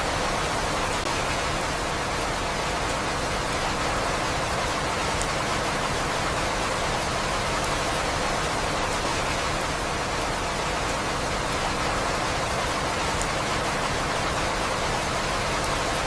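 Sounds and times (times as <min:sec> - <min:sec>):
steady rain: 0:00.0 - 0:16.0
faint raindrop ticks: 0:04.5 - 0:05.5, 0:11.6 - 0:16.0.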